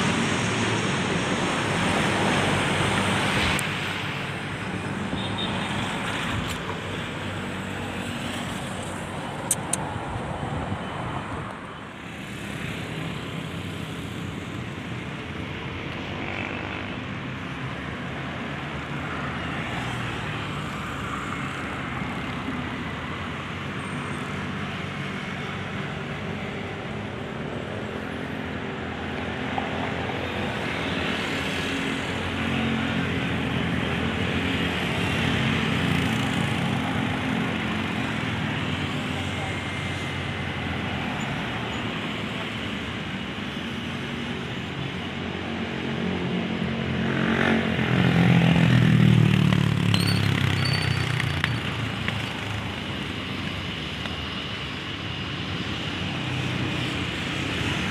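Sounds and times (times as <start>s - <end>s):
sharp clicks: 9.4s - 9.9s.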